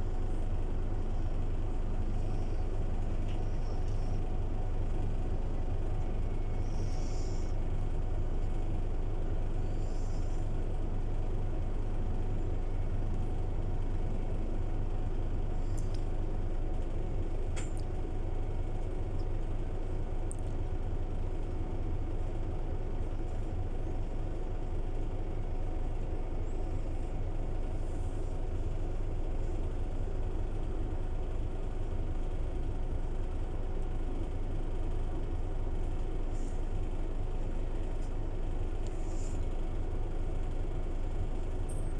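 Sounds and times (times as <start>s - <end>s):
bus engine humming: 25.6s - 41.9s.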